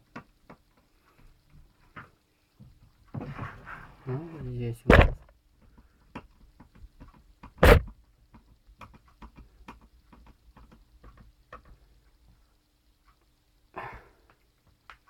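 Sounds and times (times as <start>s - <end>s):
sharp knock: 4.9s - 5.2s, 7.6s - 7.9s.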